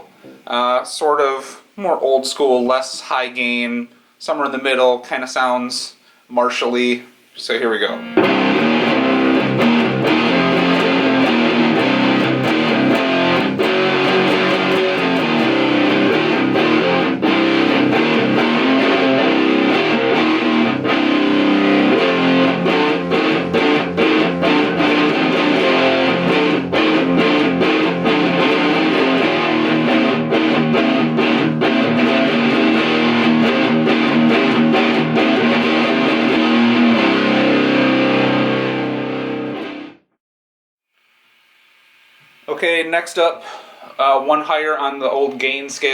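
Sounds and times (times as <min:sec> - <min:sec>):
distorted electric guitar: 0:07.9 - 0:40.0.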